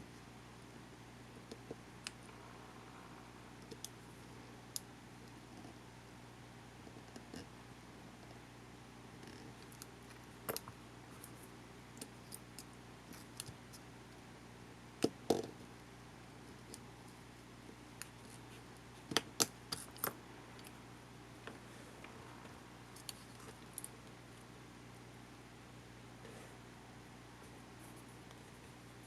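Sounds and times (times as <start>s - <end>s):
low hum: 2.0s - 5.3s.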